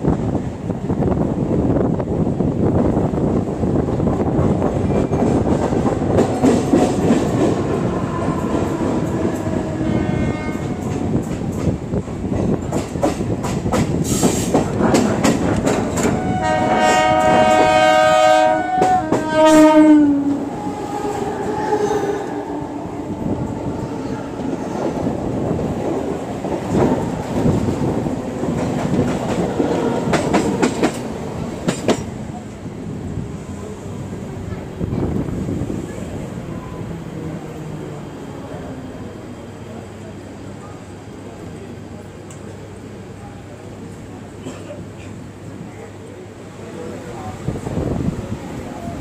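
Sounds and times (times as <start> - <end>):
train wheels rumbling on rail: 0.0 - 49.0
train horn: 7.7 - 11.0, 16.0 - 22.7.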